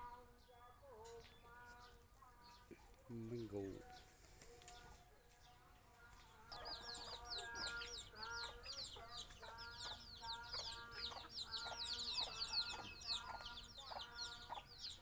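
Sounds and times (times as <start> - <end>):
chickens clucking: 5.7 - 15.0.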